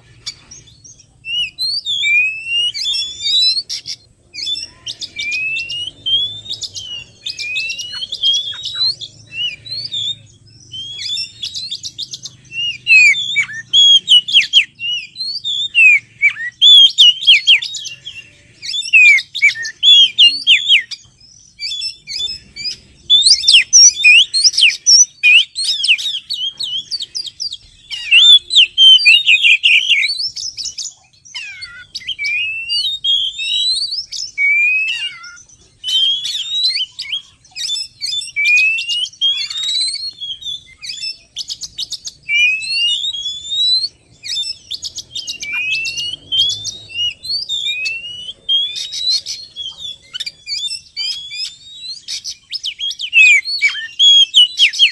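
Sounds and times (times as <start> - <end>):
songbird whistling and chirping: 0.0 - 54.9.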